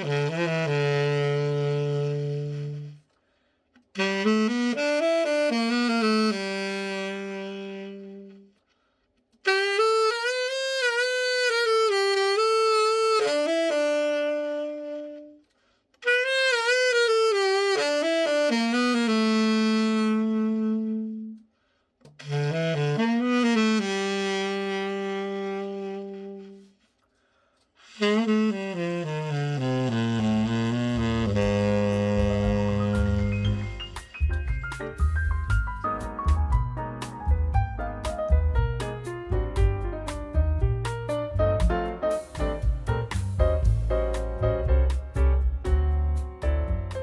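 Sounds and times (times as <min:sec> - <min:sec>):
tenor saxophone playing: 0:00.0 - 0:27.0, 0:27.8 - 0:36.4.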